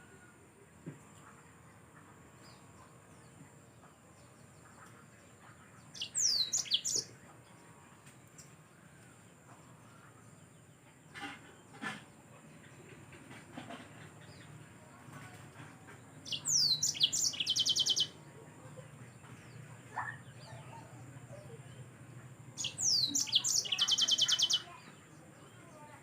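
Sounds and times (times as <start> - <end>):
faint bird chirps: 1.2 - 11.8, 16.2 - 22.0, 22.6 - 26.0.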